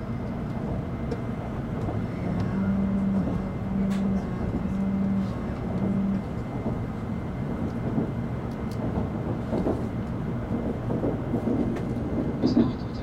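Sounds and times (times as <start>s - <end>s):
train interior low rumble: 0.0s - 13.0s.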